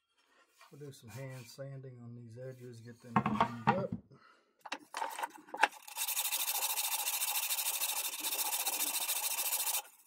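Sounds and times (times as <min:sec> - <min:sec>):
sandpaper rasping on wood: 0:05.9 - 0:10.0.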